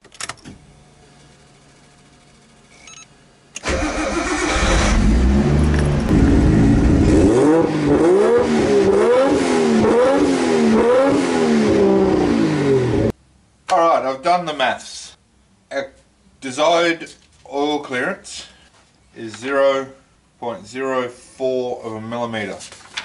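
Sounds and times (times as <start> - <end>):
car engine starting and revving: 3.6 - 13.1.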